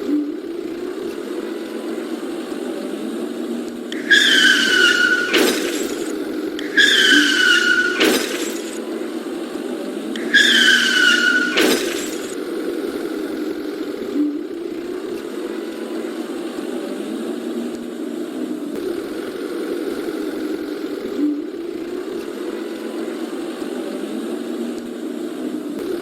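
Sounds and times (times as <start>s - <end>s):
high squealing whine: 3.9s - 9.0s, 10.2s - 12.5s.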